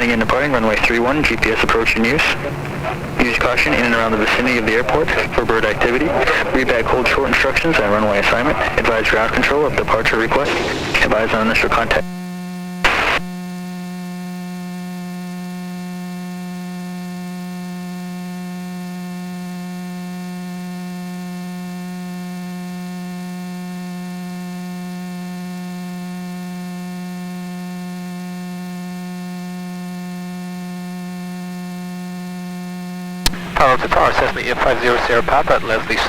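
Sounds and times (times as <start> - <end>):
radio sound burst: 0.0 - 12.1, 12.8 - 13.3, 33.2 - 36.0
electrical hum on radio feed: 0.0 - 36.0.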